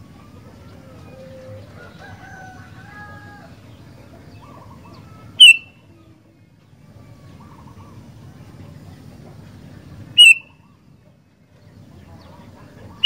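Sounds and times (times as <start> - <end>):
bird whistled phrases: 5.4 - 5.8, 10.2 - 10.7
sharp bird call: 5.4 - 5.8, 10.2 - 10.8.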